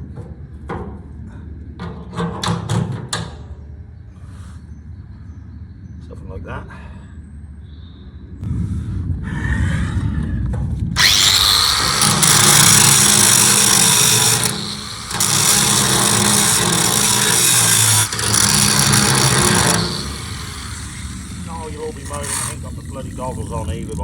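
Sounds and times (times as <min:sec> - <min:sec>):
angle grinder grinding steel: 0:11.0 - 0:24.0.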